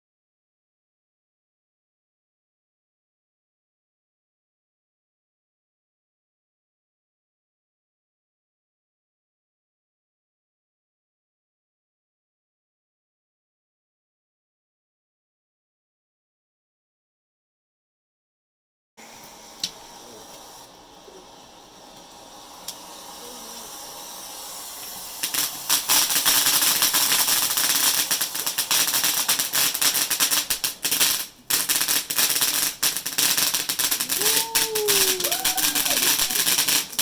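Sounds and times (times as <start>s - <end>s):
faint hiss: 19.0s - 37.0s
firework crackling: 19.0s - 37.0s.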